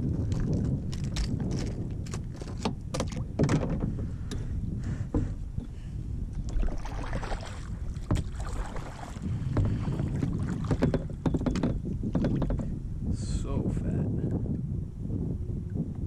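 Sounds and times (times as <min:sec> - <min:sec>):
water moving against kayak: 0:00.0 - 0:13.4
wind buffeting microphone: 0:00.0 - 0:16.0
knocks on hull: 0:01.5 - 0:04.1, 0:07.1 - 0:12.7.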